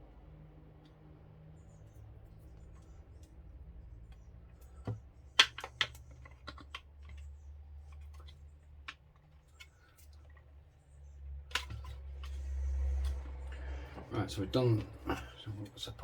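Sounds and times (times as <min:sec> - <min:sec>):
clicks of small hard parts: 0:04.1 - 0:07.3.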